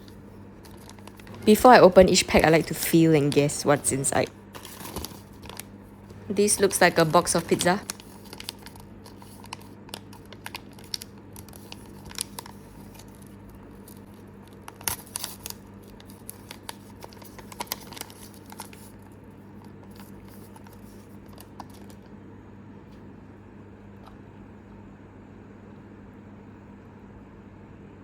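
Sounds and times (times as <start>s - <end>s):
plastic bag crinkling: 0.0s - 22.1s.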